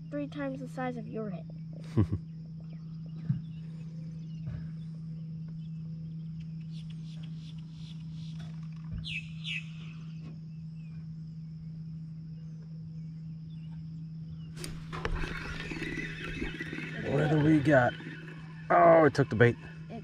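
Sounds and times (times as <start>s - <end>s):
faint ticking bird calls: 0.0s - 14.8s
steady low hum: 0.0s - 20.0s
downward-sliding bird chirps: 14.5s - 20.0s.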